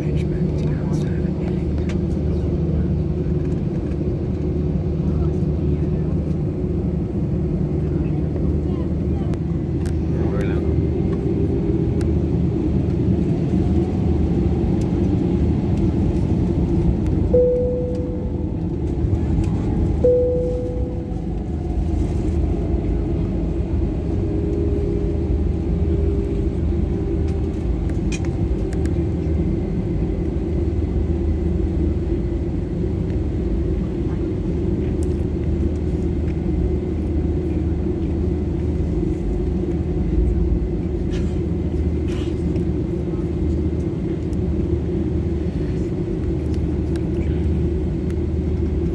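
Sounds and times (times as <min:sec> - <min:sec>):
jet engine drone in cabin: 0:00.0 - 0:48.9
short chime tones: 0:17.4 - 0:18.6, 0:20.0 - 0:21.4.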